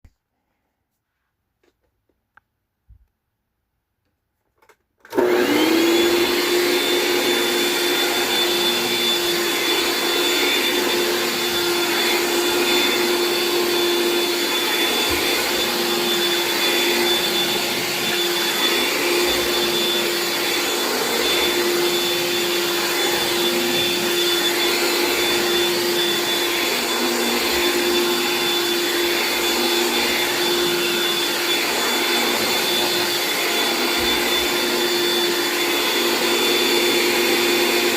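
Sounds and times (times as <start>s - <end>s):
vacuum cleaner motor whine: 5.0s - 37.9s.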